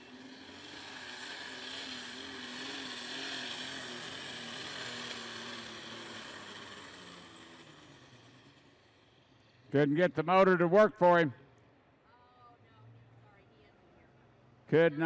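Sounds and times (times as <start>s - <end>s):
tractor engine running under load: 0.0s - 8.9s.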